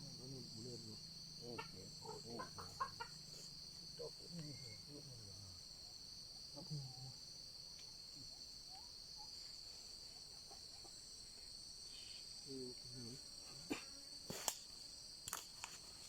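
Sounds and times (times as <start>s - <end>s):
low voice murmuring: 0.0s - 5.6s, 6.5s - 7.2s
insects trilling: 0.0s - 16.0s.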